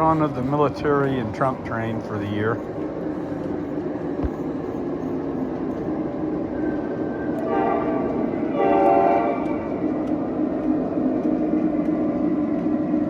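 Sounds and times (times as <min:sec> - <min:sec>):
model locomotive rumbling: 0:00.0 - 0:10.8
locomotive horn blasts: 0:07.4 - 0:09.7.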